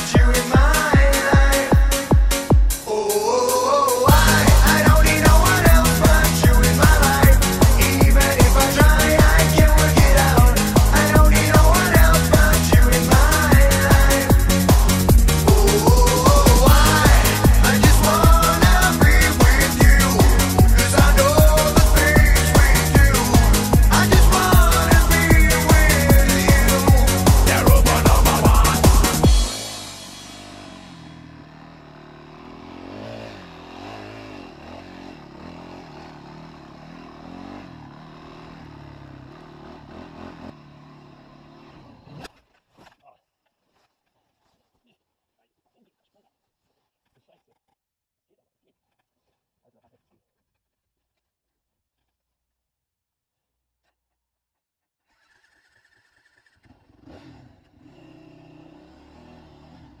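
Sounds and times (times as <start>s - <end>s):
dirt bike engine revving: 3.2s - 42.3s, 56.7s - 60.0s.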